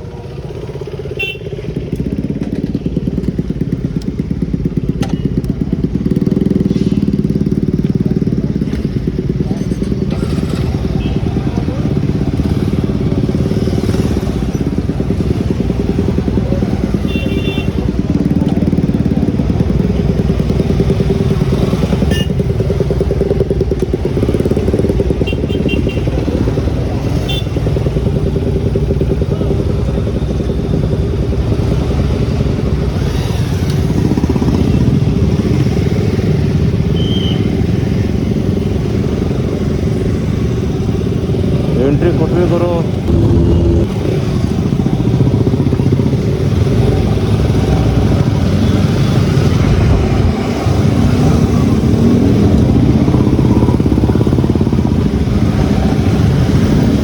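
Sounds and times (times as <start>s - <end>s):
motorcycle engine running: 0.0s - 57.0s
short high beeps: 43.1s - 44.0s.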